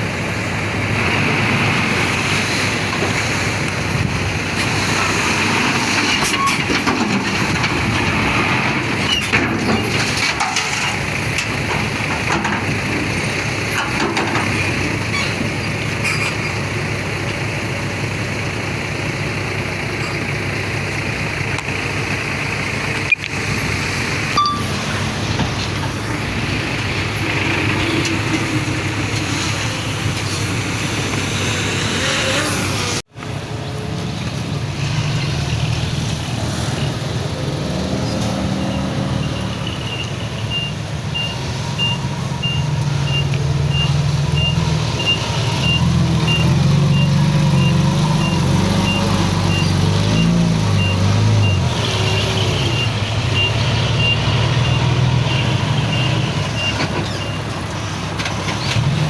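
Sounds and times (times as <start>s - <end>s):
heavy machinery diesel engines: 0.0s - 59.0s
reversing alarm beeping: 24.4s - 24.8s, 38.6s - 57.4s.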